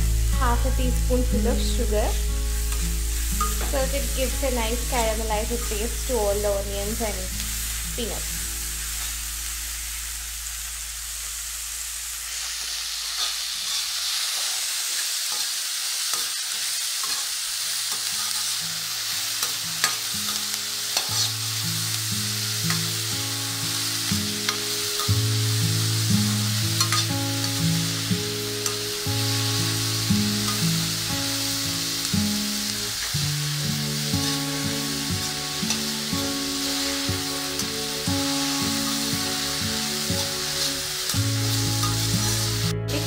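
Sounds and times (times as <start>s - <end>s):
soft background music: 0.0s - 10.4s, 19.0s - 43.0s
vegetables sizzling in oil: 0.0s - 43.0s
spoon scraping and tapping wok: 2.7s - 3.8s, 13.2s - 21.5s, 22.6s - 23.0s, 26.7s - 27.6s, 28.6s - 28.9s, 41.8s - 42.4s.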